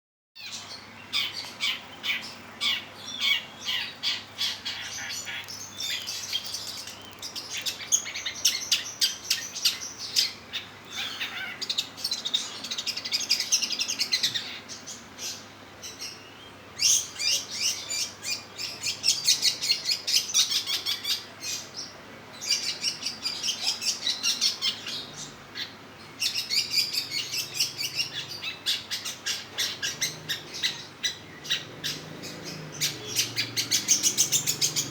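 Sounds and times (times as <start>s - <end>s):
bird singing rapid chattering notes: 0.4s - 34.9s.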